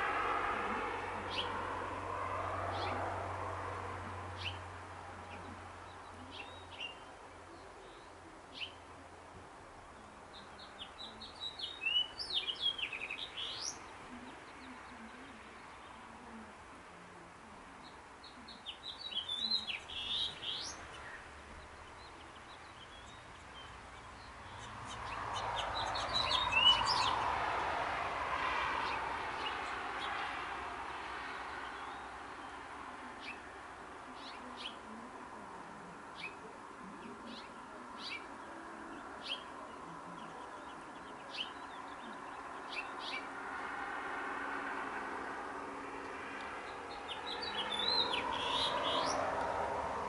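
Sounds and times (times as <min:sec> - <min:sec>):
birds chirping: 0:00.0 - 0:01.9, 0:02.6 - 0:09.0, 0:09.9 - 0:16.7, 0:17.6 - 0:50.0
vehicle engine passing by: 0:00.0 - 0:06.9, 0:23.5 - 0:35.4, 0:37.0 - 0:50.0.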